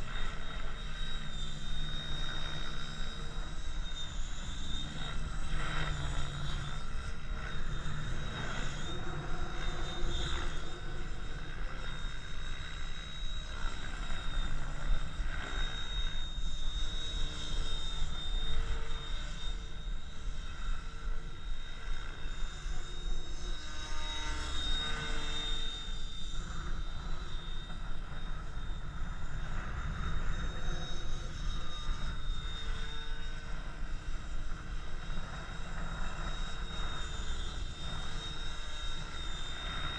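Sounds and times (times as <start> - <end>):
rc helicopter motor whine: 0.0 - 39.9
wind rumble on microphone: 16.8 - 39.9.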